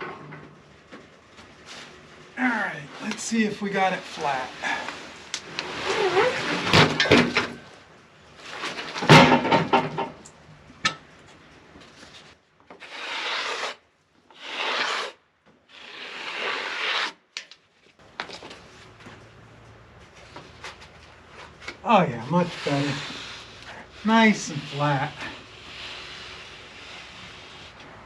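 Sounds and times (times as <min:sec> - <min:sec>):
wood scraping on wood: 0:11.8 - 0:13.8, 0:14.4 - 0:17.2, 0:20.1 - 0:28.0.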